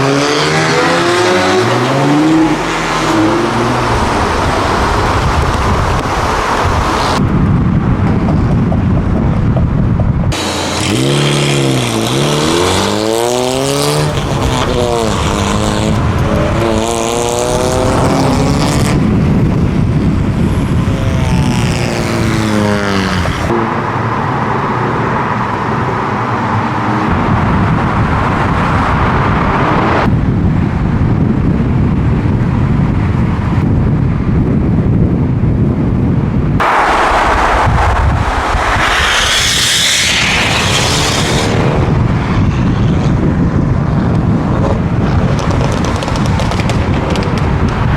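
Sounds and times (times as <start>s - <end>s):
car engines revving: 0.0s - 7.3s, 10.2s - 30.1s, 36.6s - 47.9s
driving noise rush: 0.0s - 32.4s, 36.4s - 47.9s.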